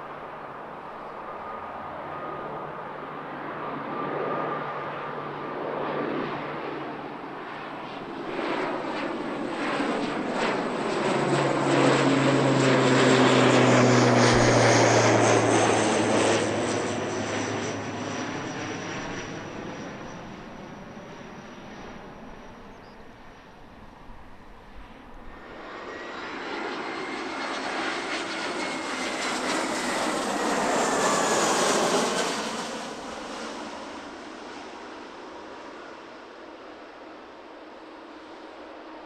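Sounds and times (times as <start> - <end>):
airliner engines passing: 0.0 - 39.0.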